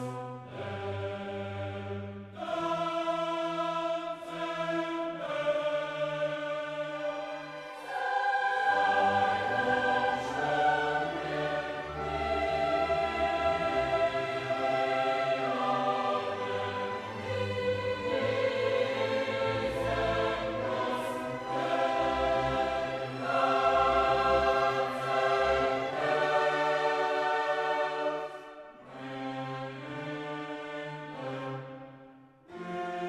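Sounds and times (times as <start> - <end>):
choir singing sustained chords: 0.0 - 33.0
orchestral accompaniment: 6.8 - 31.8.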